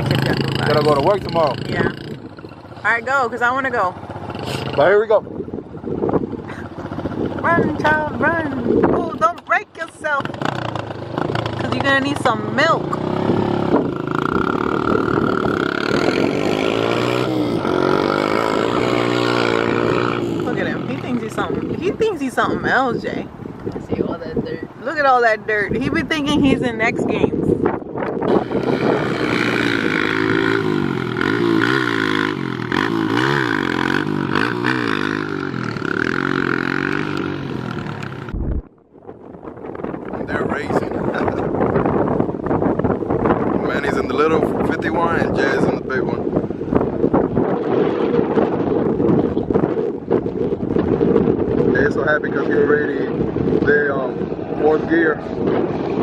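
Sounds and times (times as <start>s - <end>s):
dirt bike engine revving: 0.0s - 5.0s, 10.0s - 22.9s, 28.2s - 38.4s.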